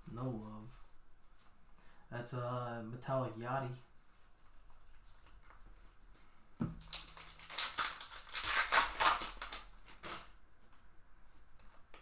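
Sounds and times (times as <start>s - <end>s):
plastic wrapper crinkling: 6.8s - 10.4s.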